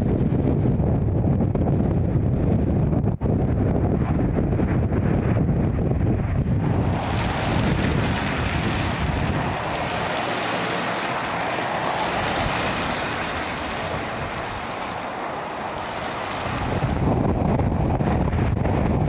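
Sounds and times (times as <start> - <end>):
wind gusts buffeting microphone: 0.0 - 19.0
rushing wind hiss: 6.0 - 19.0.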